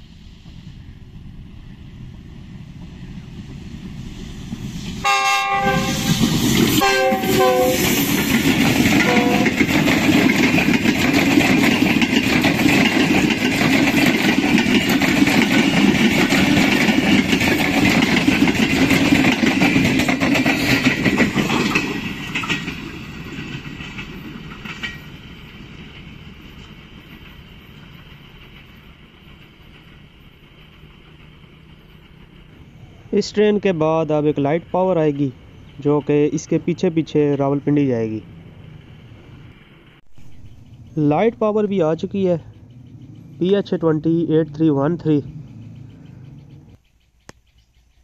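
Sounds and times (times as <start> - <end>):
train rumble and wheel clatter: 0.0 - 48.0
locomotive horn: 5.0 - 6.1, 6.8 - 8.0, 9.0 - 9.6.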